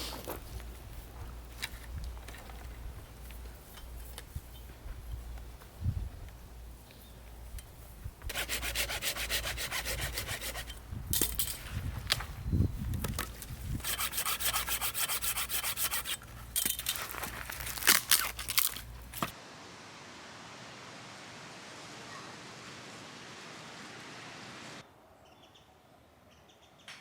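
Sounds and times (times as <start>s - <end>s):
rhythmic scraping on wood: 8.3s - 10.8s, 13.8s - 17.4s.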